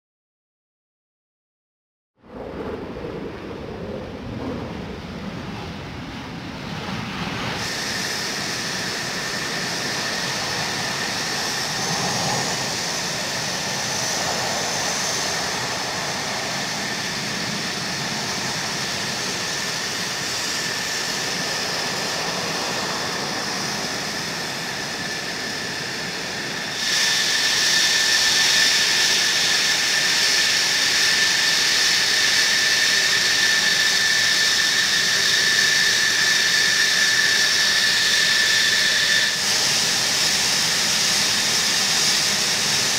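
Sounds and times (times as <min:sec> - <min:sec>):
jet engine idling: 0:02.3 - 0:42.9.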